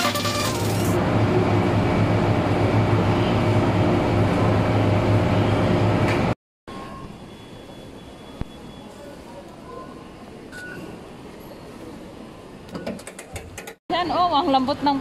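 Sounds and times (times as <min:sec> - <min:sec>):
train rumbling: 0:00.0 - 0:06.4.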